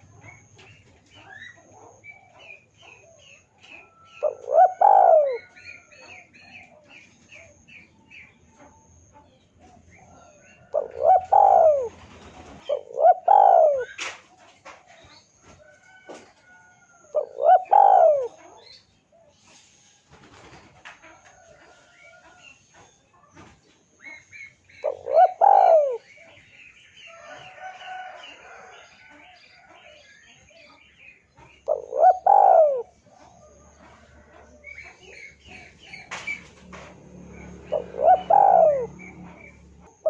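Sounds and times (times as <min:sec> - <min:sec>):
dove cooing: 0:00.0 - 0:08.2, 0:09.6 - 0:15.2, 0:16.5 - 0:19.4, 0:24.0 - 0:26.5, 0:31.5 - 0:40.0
small birds chirping: 0:00.0 - 0:40.0.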